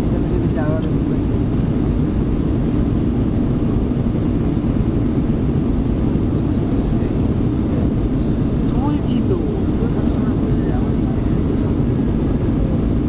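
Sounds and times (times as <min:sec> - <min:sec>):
jet airliner cabin rumble: 0:00.0 - 0:13.0.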